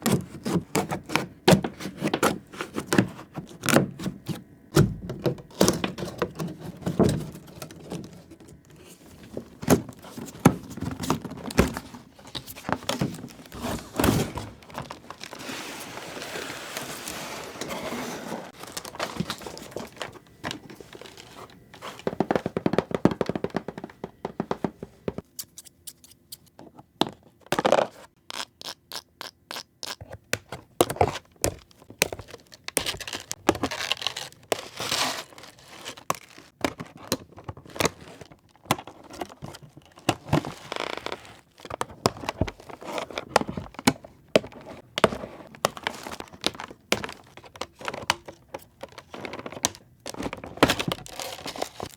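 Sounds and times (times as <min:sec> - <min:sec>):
packaging crinkling and tearing: 0:09.7 - 0:17.5, 0:18.5 - 0:23.4, 0:31.6 - 0:51.9.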